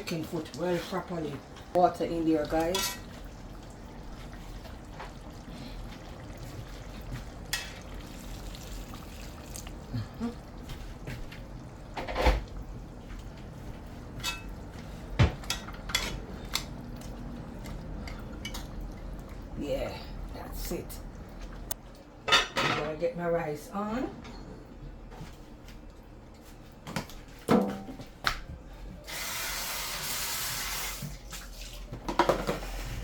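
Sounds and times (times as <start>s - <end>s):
pot and utensils clinking: 2.5s - 3.2s, 14.2s - 16.7s
water pouring into pot: 2.5s - 11.2s.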